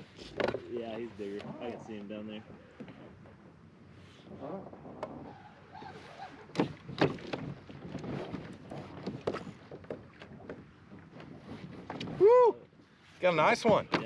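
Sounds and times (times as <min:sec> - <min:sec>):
knocks and clatter on kayak: 0:00.0 - 0:03.4, 0:06.5 - 0:12.2, 0:13.5 - 0:14.0.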